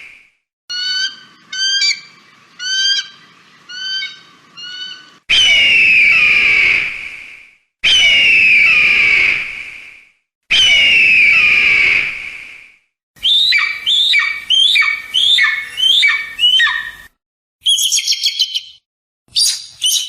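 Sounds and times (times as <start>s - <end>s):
eagle yelping calls: 0.7s - 6.8s, 13.2s - 18.7s
eagle screams sliding downward: 0.7s - 6.9s, 10.5s - 12.1s.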